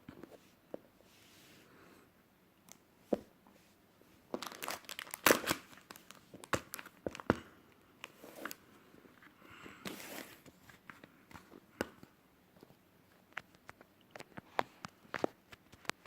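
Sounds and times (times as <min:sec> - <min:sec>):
plastic packaging crinkling: 0:04.3 - 0:07.4.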